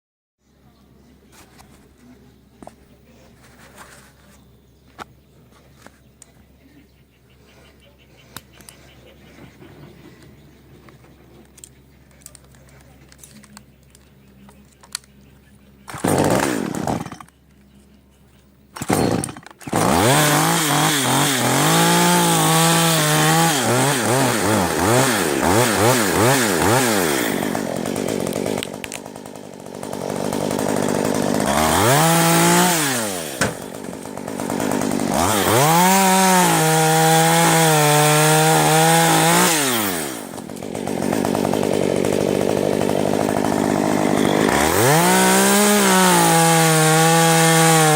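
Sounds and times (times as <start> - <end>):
chainsaw revving cutting wood: 15.9 - 17.3, 18.8 - 47.9.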